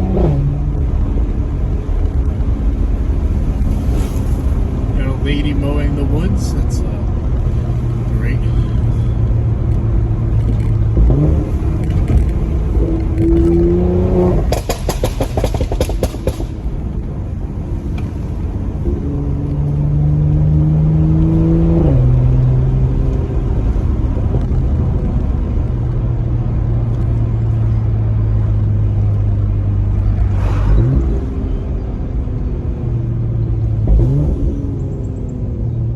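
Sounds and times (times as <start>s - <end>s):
car engine accelerating: 0.0s - 35.9s
exhaust pops and crackles: 14.4s - 16.9s.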